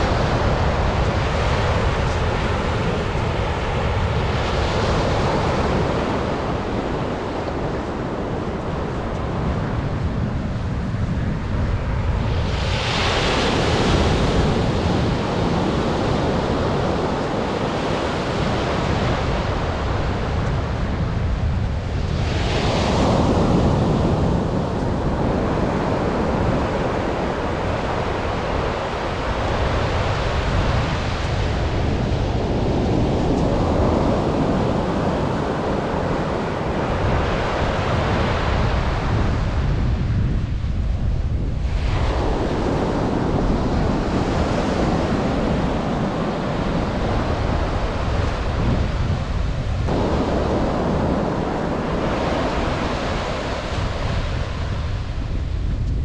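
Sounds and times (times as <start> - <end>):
surf breaking on beach: 0.0 - 21.0, 41.6 - 55.7
wind buffeting microphone: 0.0 - 56.0.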